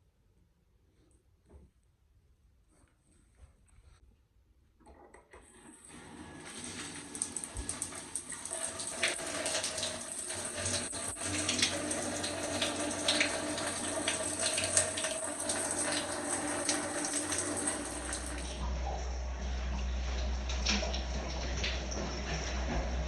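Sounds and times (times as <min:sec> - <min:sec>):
shower water spraying: 0:05.9 - 0:18.6.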